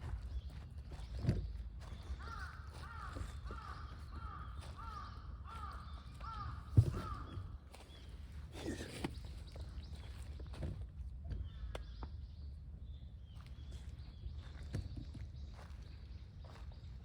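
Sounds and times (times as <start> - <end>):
crow cawing: 2.2 - 7.4.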